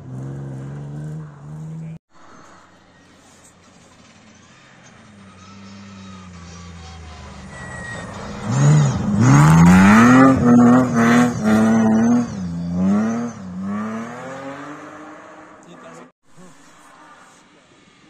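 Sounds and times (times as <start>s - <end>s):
rally car engine passing at high revs: 0.0s - 2.0s, 4.9s - 16.1s.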